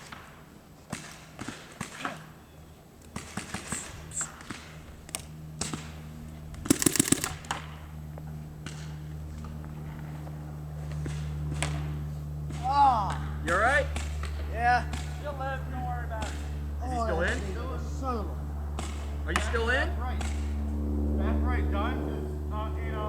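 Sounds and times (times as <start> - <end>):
paintball markers firing: 6.7 - 7.6.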